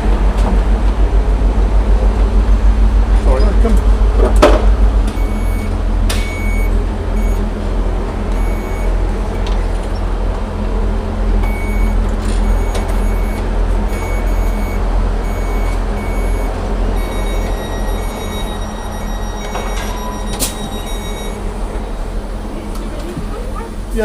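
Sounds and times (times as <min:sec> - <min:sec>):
train diesel engine idling: 0:00.0 - 0:24.0
door warning beeps: 0:05.1 - 0:07.4, 0:08.3 - 0:09.6, 0:11.4 - 0:21.5.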